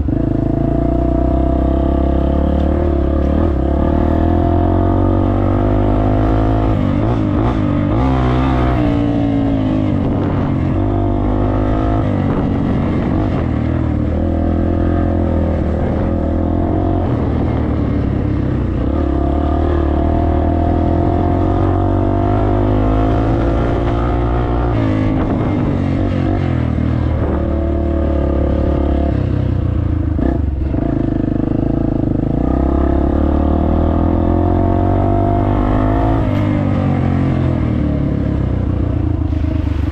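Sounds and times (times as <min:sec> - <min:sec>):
dirt bike engine revving: 0:01.7 - 0:29.2.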